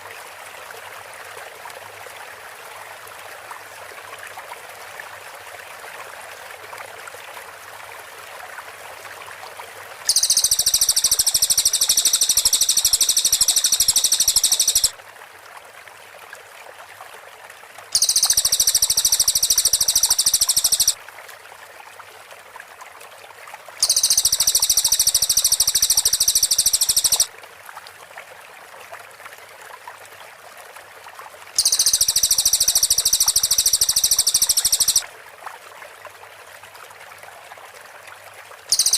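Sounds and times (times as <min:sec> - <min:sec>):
birds chattering: 0:10.1 - 0:14.9.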